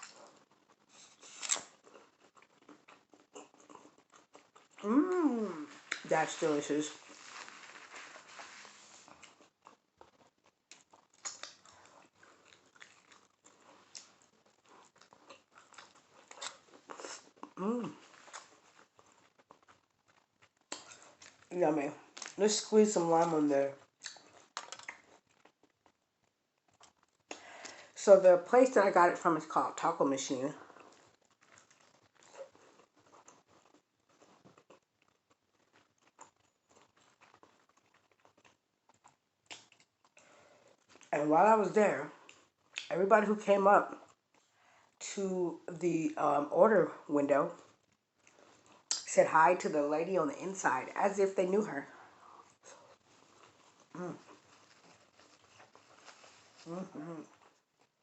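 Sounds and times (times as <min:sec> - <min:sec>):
person chewing and smacking: 0:00.0 - 0:06.1, 0:07.0 - 0:22.4, 0:23.8 - 0:27.8, 0:30.6 - 0:41.1, 0:42.2 - 0:42.9, 0:47.6 - 0:49.0, 0:52.2 - 0:58.0.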